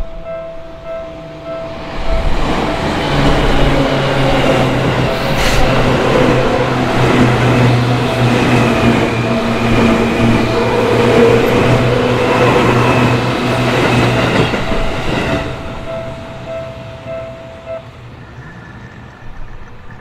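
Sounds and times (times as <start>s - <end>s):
crossing warning bell: 0.0s - 20.0s
electric train running: 0.2s - 20.0s.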